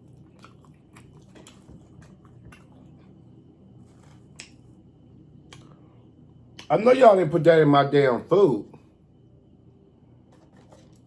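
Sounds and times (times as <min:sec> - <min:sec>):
chewing and mouth smacks: 0:00.0 - 0:04.8, 0:05.4 - 0:05.8.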